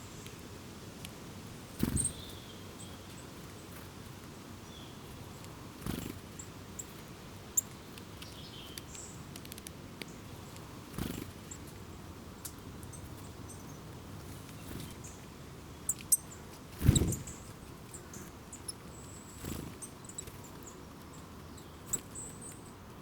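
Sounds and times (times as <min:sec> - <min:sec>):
small birds chirping: 0:01.7 - 0:23.0.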